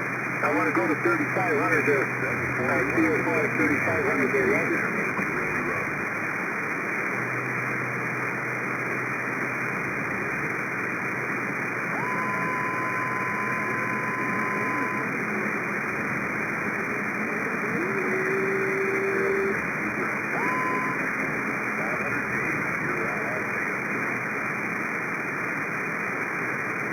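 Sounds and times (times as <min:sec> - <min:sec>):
radio static hiss: 0:00.0 - 0:26.9
high steady whistle: 0:11.9 - 0:15.2, 0:20.3 - 0:21.1
low steady whistle: 0:11.9 - 0:15.4, 0:20.3 - 0:21.2.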